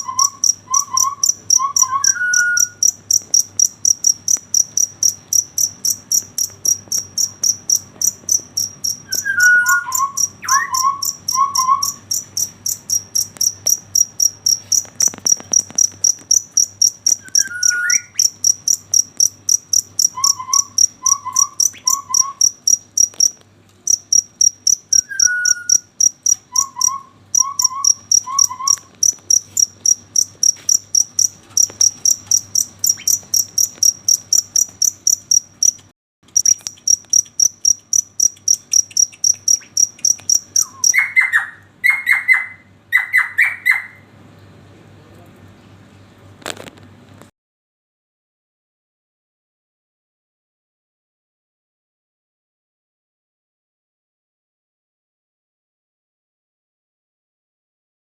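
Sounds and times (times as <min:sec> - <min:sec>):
cricket chirping: 0:00.0 - 0:44.0.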